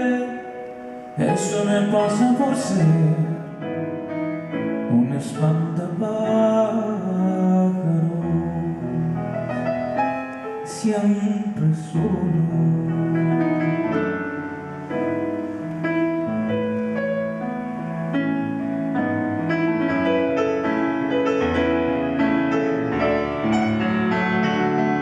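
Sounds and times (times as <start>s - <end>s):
piano chords and melody: 0.0s - 25.0s.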